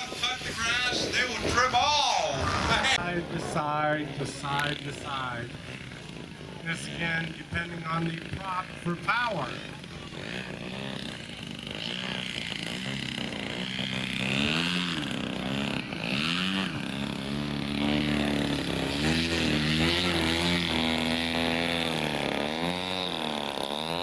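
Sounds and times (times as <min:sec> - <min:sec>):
model helicopter motor whine: 0:00.0 - 0:24.0.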